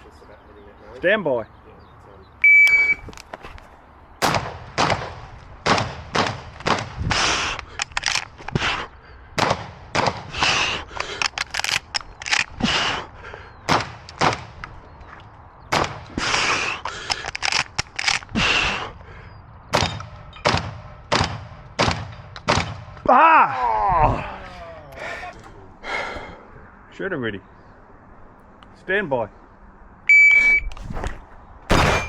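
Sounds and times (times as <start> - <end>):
shotgun shots: 4.2 - 7.4, 9.4 - 10.5, 13.7 - 14.6, 15.7 - 16.3, 19.7 - 23.0, 31.7 - 32.0.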